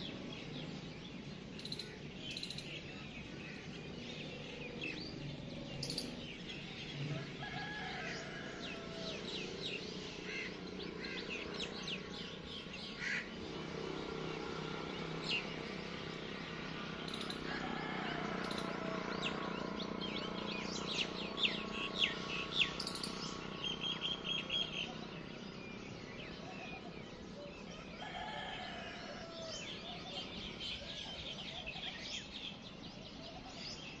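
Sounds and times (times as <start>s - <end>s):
small birds chirping and twittering: 0.0s - 34.0s
bird trill: 1.6s - 3.0s, 5.8s - 6.3s, 17.1s - 17.5s, 22.5s - 24.8s.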